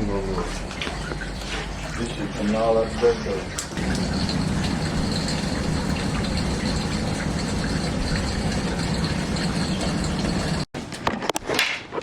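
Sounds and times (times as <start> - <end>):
water gushing: 0.0 - 10.7.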